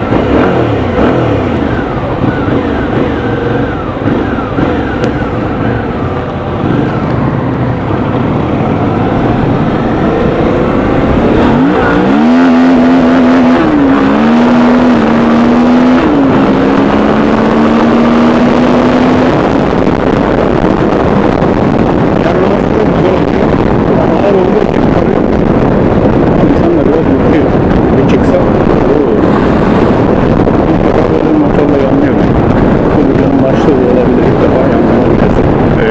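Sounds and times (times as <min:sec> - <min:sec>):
motorcycle engine accelerating hard: 0:00.0 - 0:35.9.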